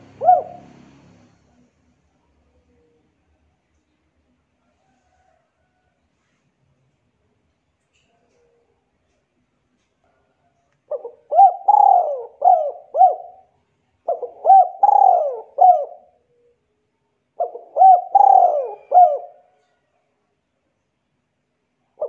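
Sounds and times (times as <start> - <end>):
bird calling: 0.0 - 0.8, 10.9 - 13.5, 14.1 - 16.6, 17.4 - 19.4.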